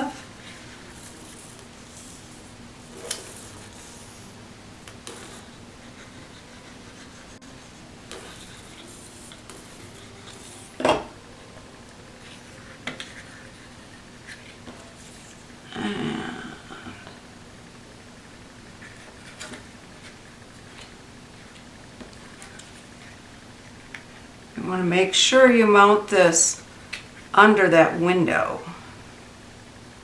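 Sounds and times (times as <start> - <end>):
paper rubbing: 0.0 - 10.8
faint steady hum: 0.0 - 30.0.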